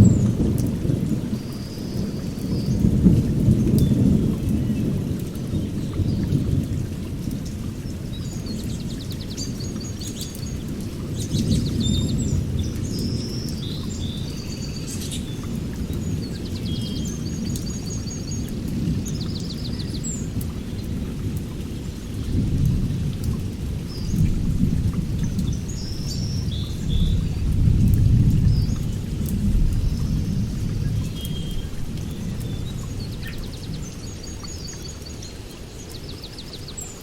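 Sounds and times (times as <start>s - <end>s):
small birds chirping: 7.2s - 21.0s.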